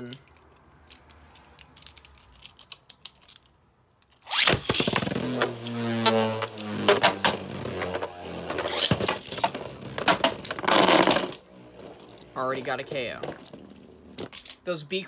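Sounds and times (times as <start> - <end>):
spinning tops launching whir: 4.2 - 12.1.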